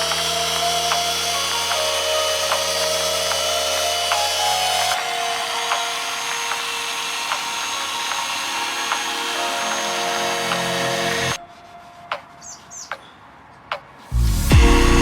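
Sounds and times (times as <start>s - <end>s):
electric polisher running: 0.0s - 11.4s.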